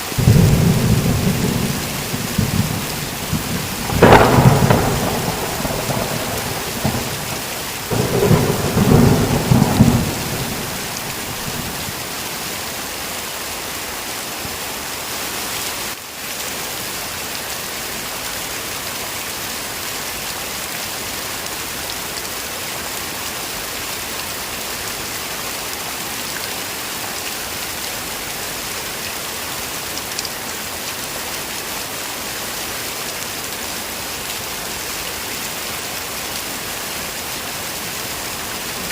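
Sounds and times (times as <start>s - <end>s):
heavy rain falling: 0.0s - 38.9s
thunder rumble: 0.2s - 12.1s.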